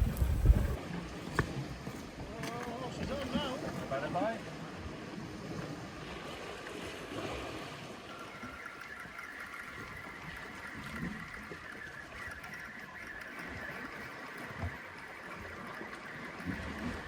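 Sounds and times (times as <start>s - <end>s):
fishing reel whirring: 0.0s - 0.8s, 6.4s - 17.0s
sea water washing around rocks: 0.0s - 1.8s.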